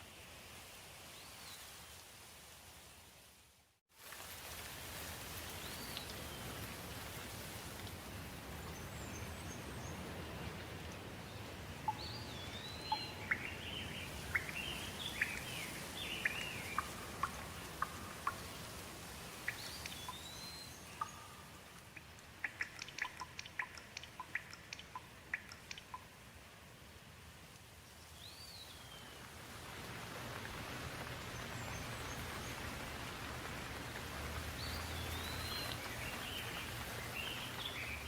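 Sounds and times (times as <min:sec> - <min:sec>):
light rain: 0:00.0 - 0:38.0
water dripping: 0:04.0 - 0:08.8, 0:11.8 - 0:26.2, 0:29.2 - 0:38.0
small birds chirping: 0:08.6 - 0:18.6, 0:19.4 - 0:26.1, 0:34.5 - 0:38.0.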